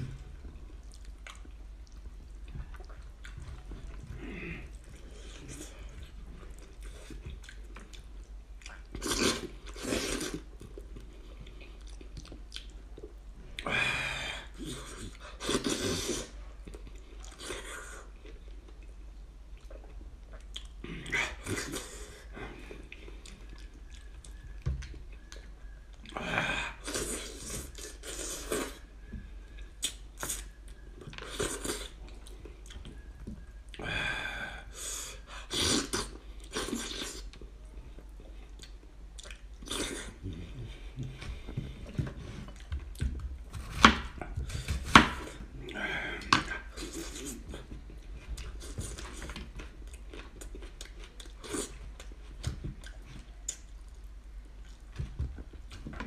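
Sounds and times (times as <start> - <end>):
close-up chewing: 0.0 - 13.3, 14.6 - 26.2, 35.3 - 56.0.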